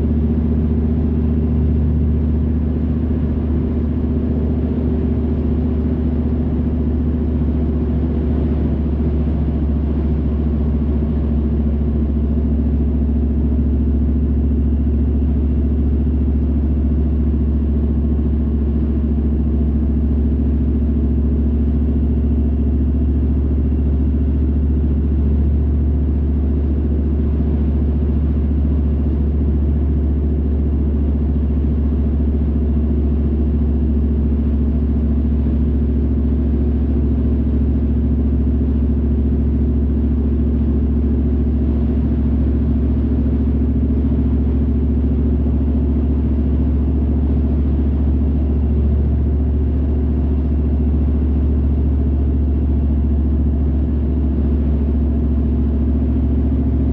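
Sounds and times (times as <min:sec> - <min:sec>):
car engine and road rumble: 0:00.0 - 0:56.9.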